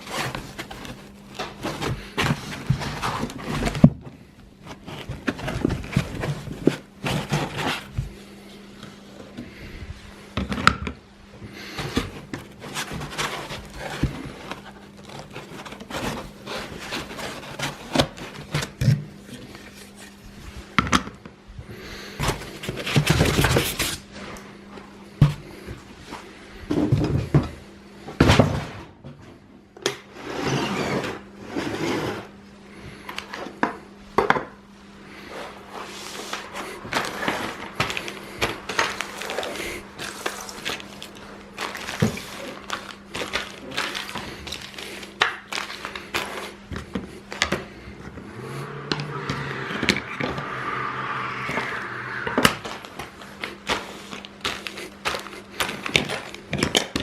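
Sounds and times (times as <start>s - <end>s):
rustling and scraping: 0.0s - 8.6s, 11.8s - 20.7s, 35.1s - 56.3s.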